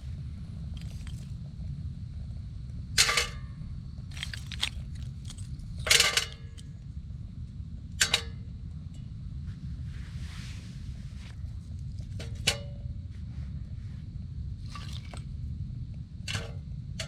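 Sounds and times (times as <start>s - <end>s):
low rumble: 0.0s - 5.9s.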